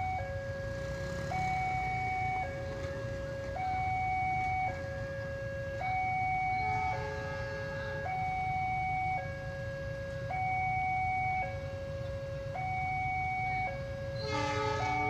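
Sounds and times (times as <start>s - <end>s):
railroad crossing warning bell: 0.0s - 15.0s
train horn blowing: 6.5s - 8.2s, 14.1s - 15.0s.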